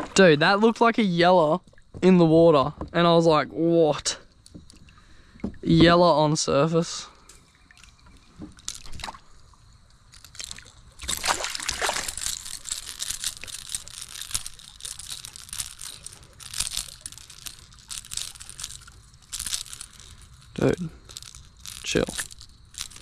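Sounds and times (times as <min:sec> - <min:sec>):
water splashing and sloshing: 0:00.0 - 0:03.4, 0:04.2 - 0:06.4, 0:07.1 - 0:23.0
water drips: 0:07.2 - 0:23.0.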